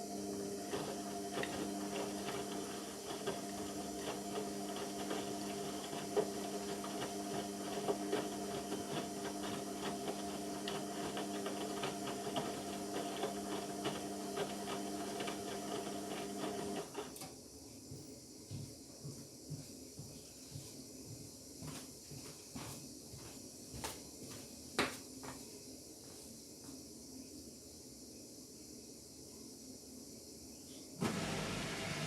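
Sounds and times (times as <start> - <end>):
washing machine humming: 0.0 - 17.3, 31.0 - 32.0.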